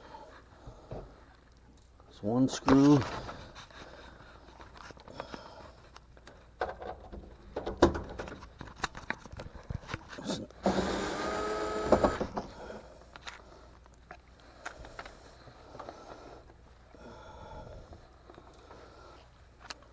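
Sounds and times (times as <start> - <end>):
cordless drill whirring: 10.6 - 12.4.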